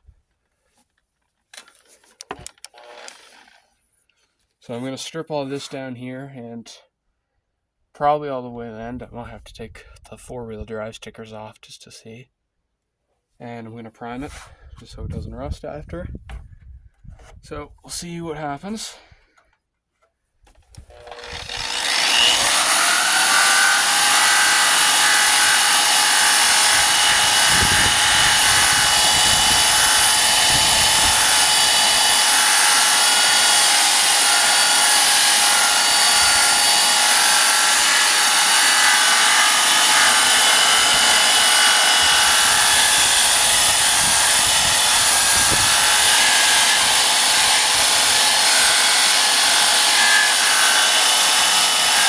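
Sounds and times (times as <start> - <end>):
electric sanding tool whining: 20.9 - 52.0.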